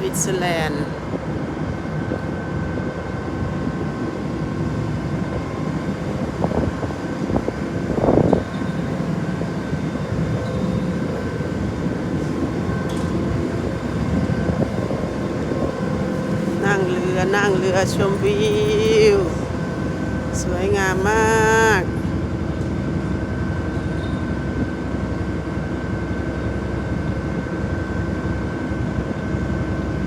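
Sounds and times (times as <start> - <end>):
boat engine drone: 0.0 - 30.0
faint constant hum: 0.0 - 30.0.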